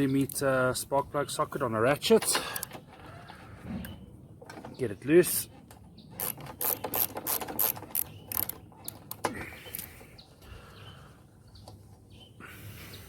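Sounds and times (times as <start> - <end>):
socket ratchet clicking: 6.2 - 9.9
quiet handling noises: 11.3 - 12.3.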